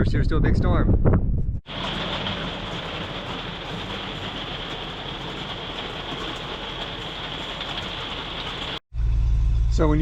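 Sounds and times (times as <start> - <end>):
rain falling steadily: 1.7 - 8.8.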